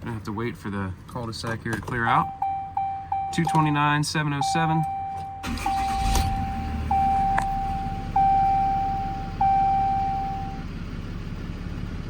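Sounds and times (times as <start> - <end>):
dashboard warning chime: 2.1 - 10.6
diesel engine idling: 2.1 - 12.0.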